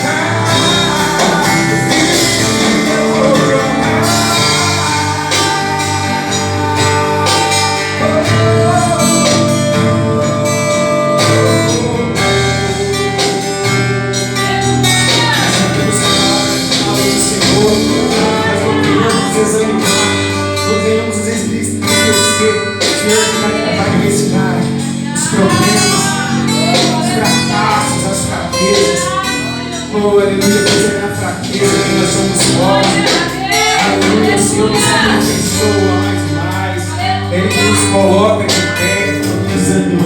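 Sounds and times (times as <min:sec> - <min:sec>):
guitar-led gospel music: 0:00.0 - 0:40.0
person singing wordless lines: 0:00.0 - 0:40.0.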